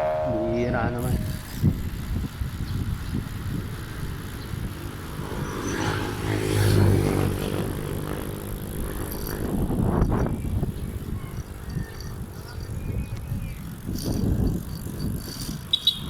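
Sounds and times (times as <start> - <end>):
wind buffeting microphone: 0.0 - 16.0
vehicle passing by: 4.2 - 9.6.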